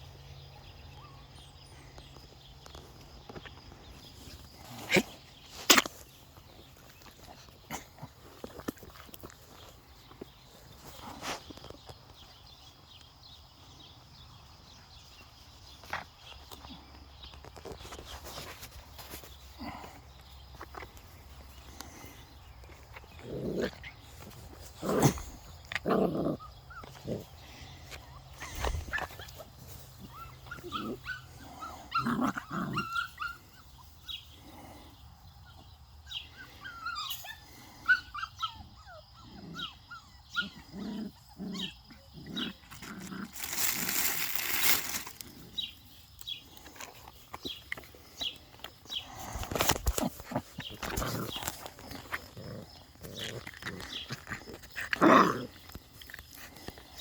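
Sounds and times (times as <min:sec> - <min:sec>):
puppies whining and yipping: 0:27.9 - 0:34.3, 0:35.5 - 0:42.1
loud rustling: 0:43.2 - 0:45.4.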